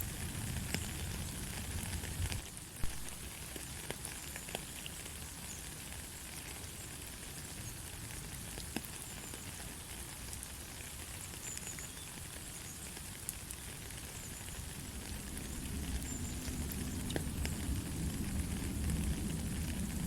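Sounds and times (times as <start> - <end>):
light rain with drop ticks: 0.0 - 20.0
low rumble: 14.8 - 20.0.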